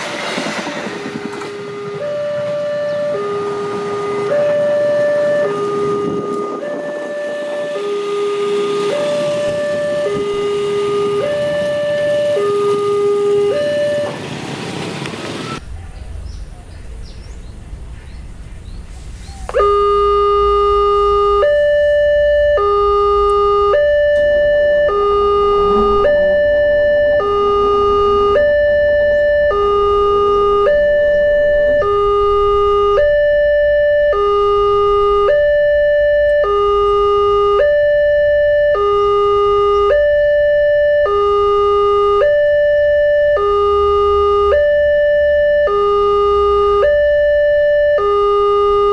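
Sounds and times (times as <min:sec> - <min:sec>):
two-tone level crossing siren: 0:00.0 - 0:14.3, 0:15.4 - 0:48.9
low background rumble: 0:15.6 - 0:39.5.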